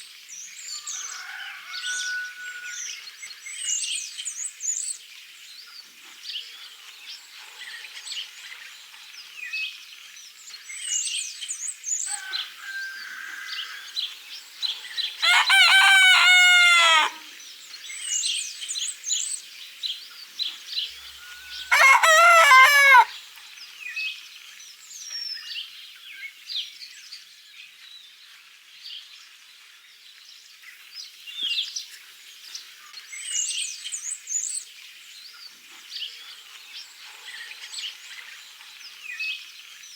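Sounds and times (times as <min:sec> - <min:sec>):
songbirds chirping: 0:00.0 - 0:39.9
rooster crowing: 0:00.8 - 0:02.9, 0:12.1 - 0:14.0, 0:15.2 - 0:17.3, 0:21.0 - 0:23.2.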